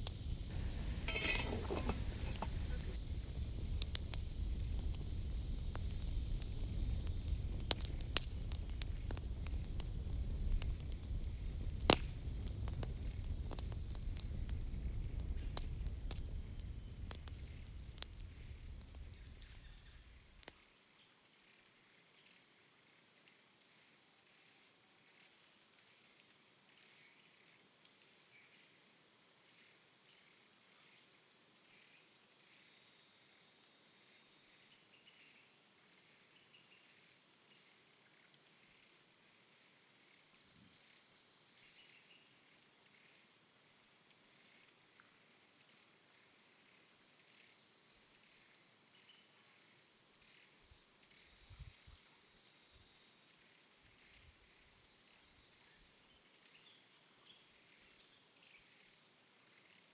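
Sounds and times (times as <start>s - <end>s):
crickets chirping: 0.0s - 22.9s, 23.5s - 59.9s.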